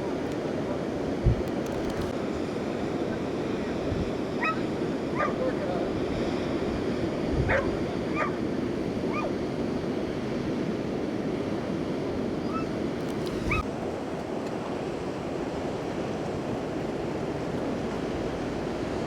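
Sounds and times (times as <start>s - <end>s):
wind buffeting microphone: 0.0s - 13.7s
ocean surf washing: 0.0s - 19.0s.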